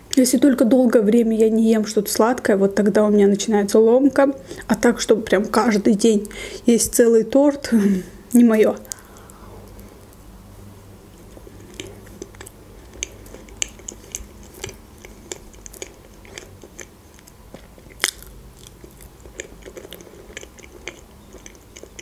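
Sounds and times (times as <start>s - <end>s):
person chewing cake: 8.8s - 10.3s, 11.1s - 22.0s
wet mouth clicks and smacks: 12.1s - 16.5s.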